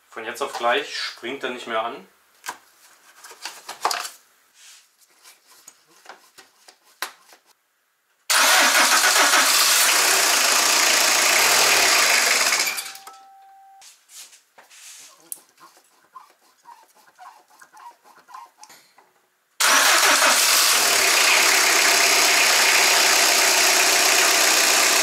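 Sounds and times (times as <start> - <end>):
diesel engine cranking on starter: 8.3 - 13.0, 19.6 - 25.0.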